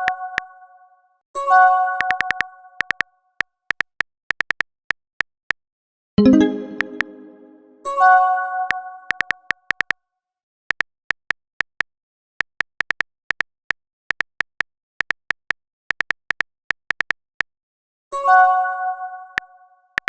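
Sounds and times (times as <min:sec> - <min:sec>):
keyboard typing clicks: 0:02.0 - 0:03.0, 0:06.2 - 0:07.6
message chime: 0:06.2 - 0:07.9.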